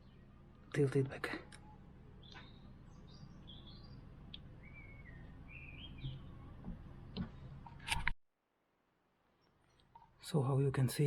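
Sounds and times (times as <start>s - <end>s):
songbird chirping: 0.0s - 8.1s, 9.2s - 11.0s
light clicks and knocks: 6.0s - 8.2s.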